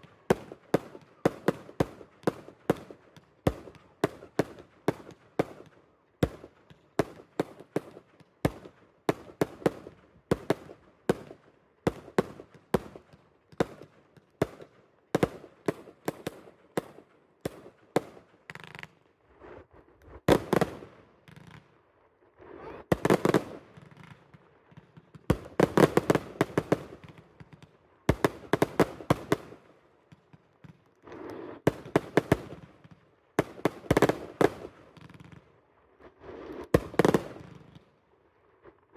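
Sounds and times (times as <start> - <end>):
fireworks crackling bursts: 0.0 - 21.8, 22.4 - 38.0
fireworks bangs: 20.2 - 21.6, 22.9 - 35.5, 36.3 - 37.9.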